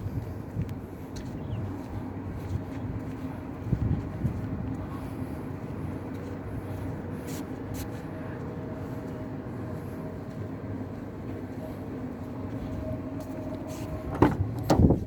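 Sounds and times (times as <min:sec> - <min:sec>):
car engine running steadily: 0:07.6 - 0:15.0.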